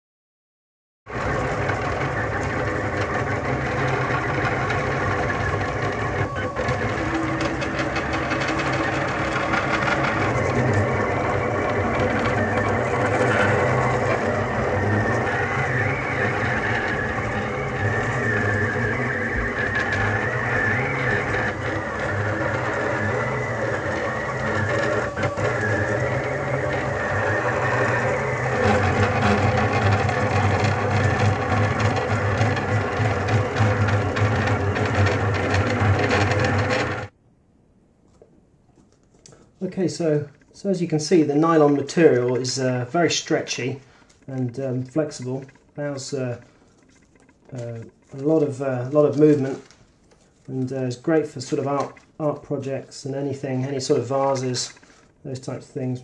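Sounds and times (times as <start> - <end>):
stepper motors whining: 1.1 - 37.2, 39.6 - 56.0.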